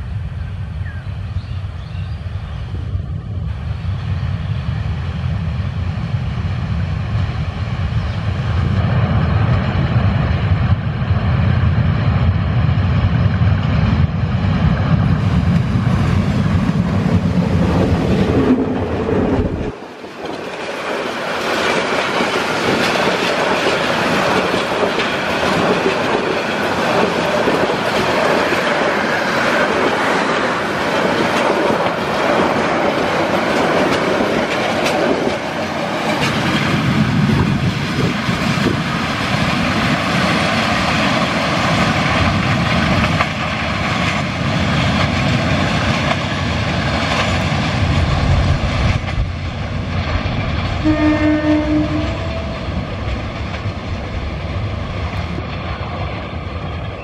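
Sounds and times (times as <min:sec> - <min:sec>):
diesel locomotive engine rumble: 0:00.0 - 0:57.0
train coaches rattling past: 0:00.0 - 0:57.0
wheels clacking over track: 0:15.1 - 0:49.4.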